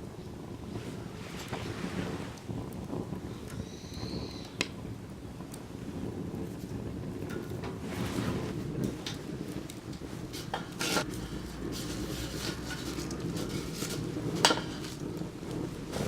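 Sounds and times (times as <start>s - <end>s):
bonfire crackling: 0.0s - 16.0s
low steady rumble: 4.8s - 16.0s.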